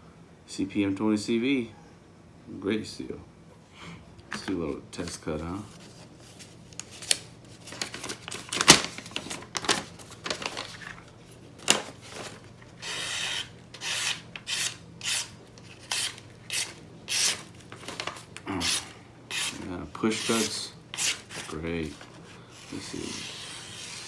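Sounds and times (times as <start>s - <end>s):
knife slicing through paper: 12.0s - 24.0s.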